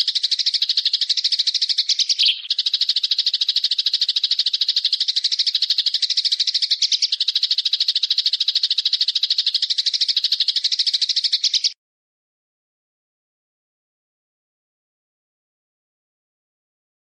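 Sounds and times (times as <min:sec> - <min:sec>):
small bird rattling trill: 0:00.0 - 0:11.8.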